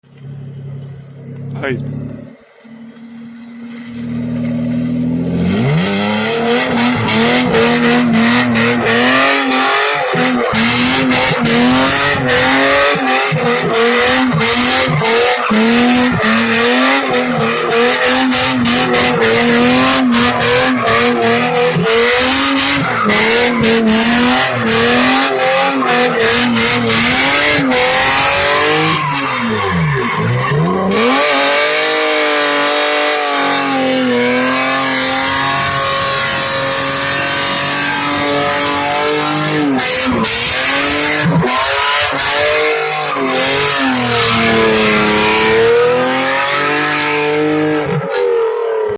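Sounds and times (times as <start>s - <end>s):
car engine revving: 0.1s - 48.9s
tyres squealing: 6.6s - 31.5s.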